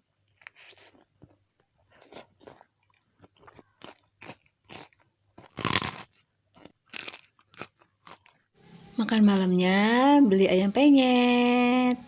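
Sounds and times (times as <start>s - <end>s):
person chewing crunchy food: 0.0s - 8.5s.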